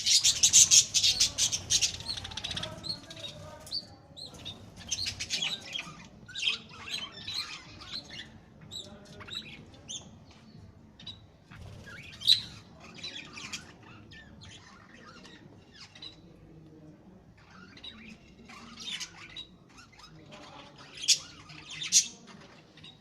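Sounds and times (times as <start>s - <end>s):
parrots chirping and squawking: 0.0s - 3.4s, 4.2s - 8.5s, 11.1s - 16.2s, 17.4s - 23.0s.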